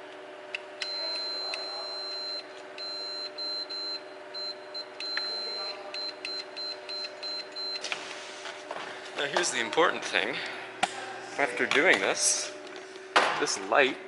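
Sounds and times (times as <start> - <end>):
electronic buzzer beeps: 0.8 - 7.9.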